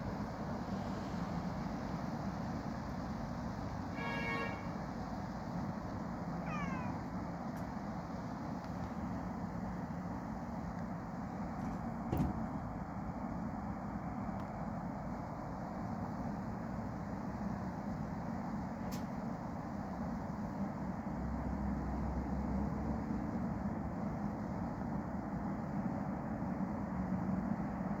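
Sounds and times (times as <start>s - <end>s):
faint hum: 0.0s - 21.2s
low background rumble: 4.8s - 21.2s.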